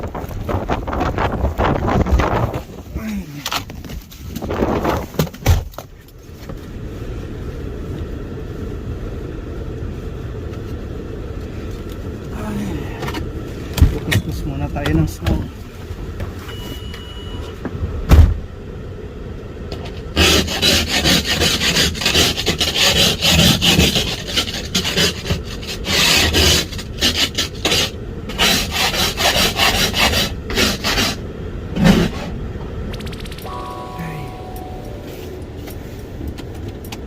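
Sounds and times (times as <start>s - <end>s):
thump: 18.1s - 18.4s.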